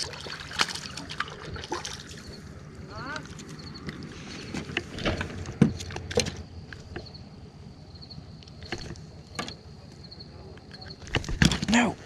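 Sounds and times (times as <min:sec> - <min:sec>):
low outdoor rumble: 0:00.0 - 0:12.0
sharp knocks and clicks: 0:08.5 - 0:09.6.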